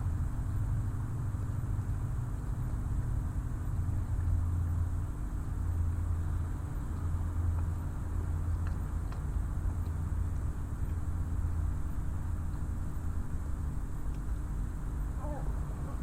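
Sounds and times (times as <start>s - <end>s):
low engine hum: 0.0s - 16.0s
faint clicks: 8.4s - 11.6s.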